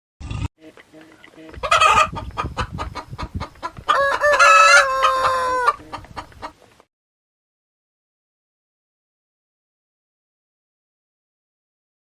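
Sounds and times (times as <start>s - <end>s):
chickens clucking: 0.4s - 6.9s
chicken squawking: 1.4s - 6.6s
rooster crowing: 3.9s - 6.0s.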